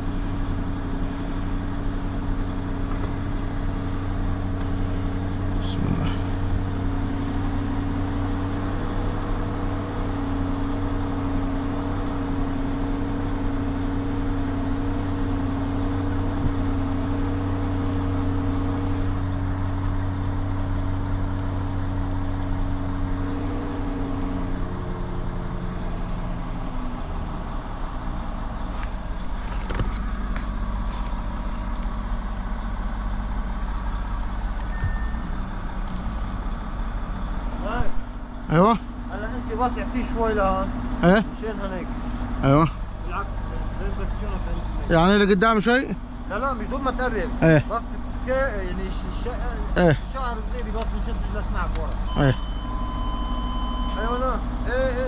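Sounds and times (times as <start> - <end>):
car engine idling: 0.0 - 55.0
short beep: 34.7 - 35.4, 52.1 - 54.2.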